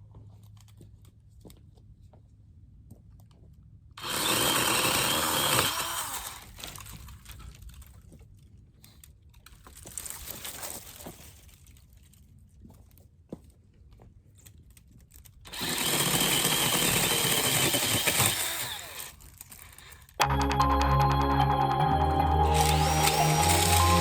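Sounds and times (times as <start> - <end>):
power saw cutting wood: 4.0 - 6.4, 15.5 - 19.0.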